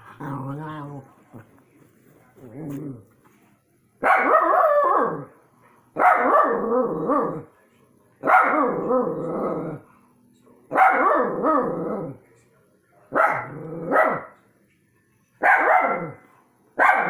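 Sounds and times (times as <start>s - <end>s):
dog barking long calls: 4.0s - 5.3s, 6.0s - 7.4s, 15.4s - 16.2s, 16.8s - 17.0s.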